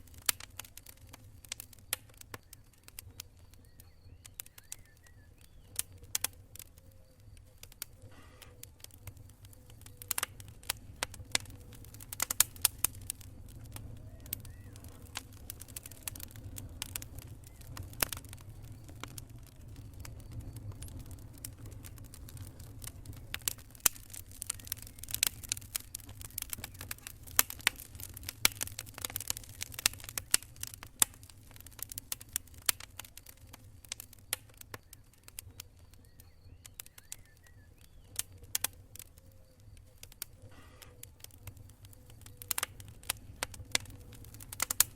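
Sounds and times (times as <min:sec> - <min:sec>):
campfire crackling and popping: 0:00.0 - 0:44.9
steady low rumble: 0:09.0 - 0:31.8.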